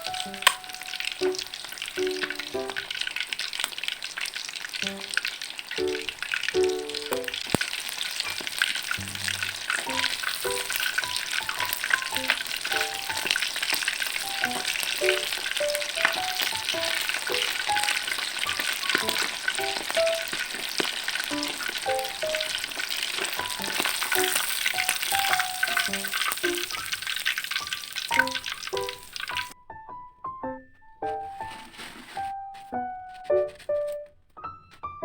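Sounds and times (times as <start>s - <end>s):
soft melody of single notes: 0.0s - 2.9s, 5.8s - 7.5s
food deep-frying in hot oil: 0.0s - 29.6s.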